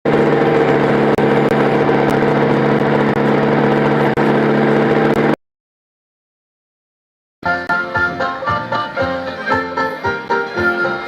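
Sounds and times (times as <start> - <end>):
tractor engine idling: 0.1 - 5.4.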